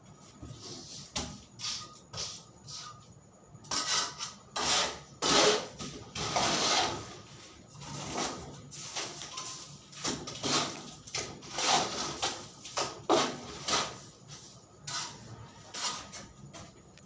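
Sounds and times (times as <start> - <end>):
scraping strokes: 3.7 - 9.8, 10.4 - 16.4.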